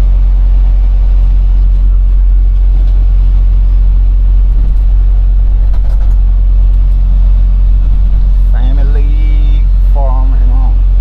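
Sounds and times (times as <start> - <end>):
truck engine and road drone: 0.0 - 11.0.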